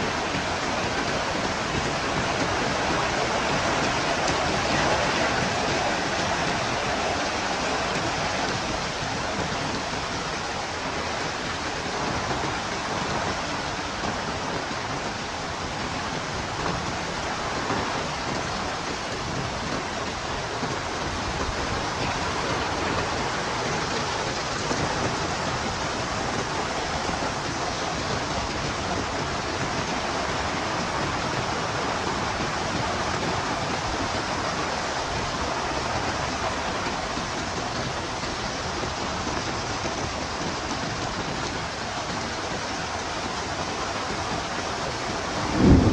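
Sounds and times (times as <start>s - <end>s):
heavy rain pouring: 0.0s - 45.9s.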